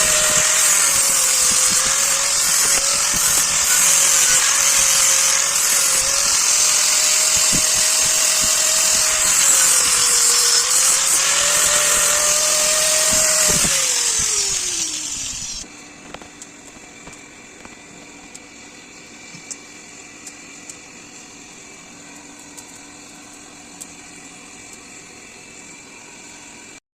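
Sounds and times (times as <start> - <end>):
electric grinder grinding steel: 0.0 - 15.7.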